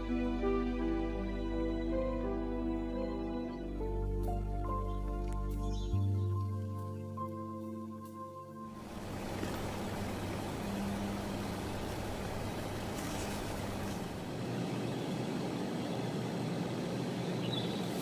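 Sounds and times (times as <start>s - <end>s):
music: 0.0s - 13.6s
faint low hum: 8.8s - 18.0s.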